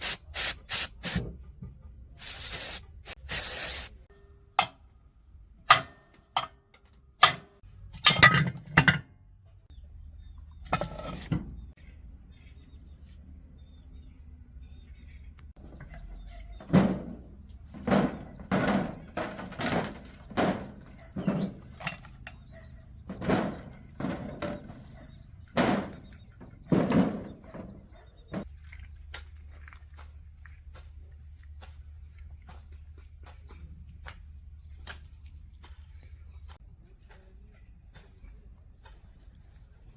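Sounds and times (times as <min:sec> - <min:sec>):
insect chirring: 0:00.0 - 0:01.4, 0:02.1 - 0:04.1.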